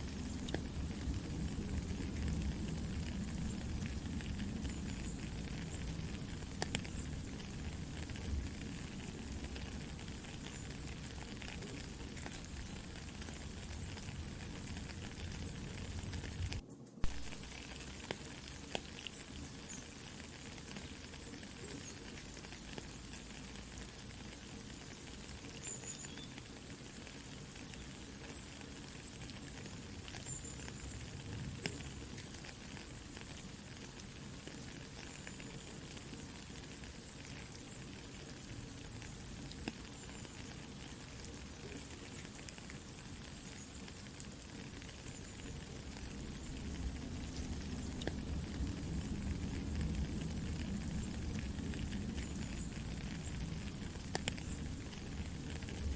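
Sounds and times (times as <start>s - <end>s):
campfire crackling: 0.0s - 55.9s
soft rain falling: 0.0s - 55.9s.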